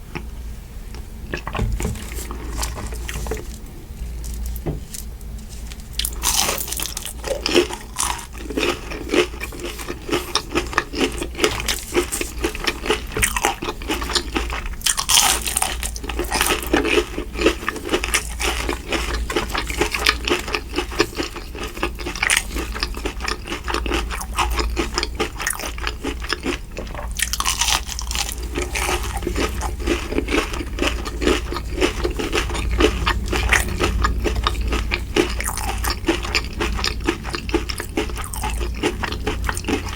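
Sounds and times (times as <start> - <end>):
crunching bites and chewing: 0.9 - 39.9.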